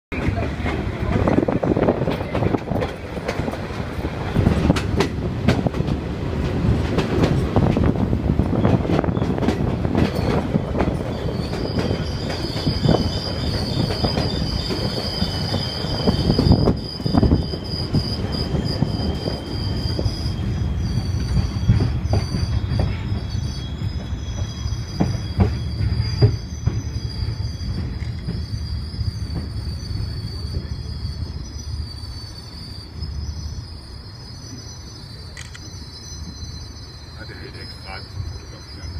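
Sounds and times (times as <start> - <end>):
train wheels clattering: 0.1 - 31.6
train rumbling on rails: 0.1 - 38.9
high-pitched wheel squeal: 10.0 - 38.9.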